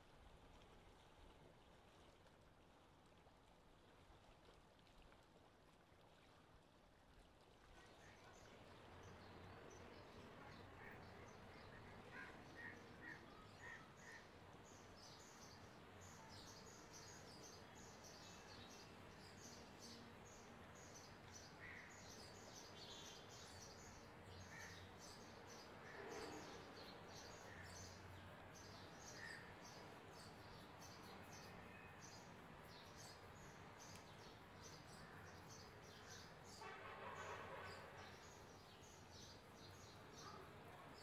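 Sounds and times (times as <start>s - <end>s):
background hiss: 8.0s - 41.0s.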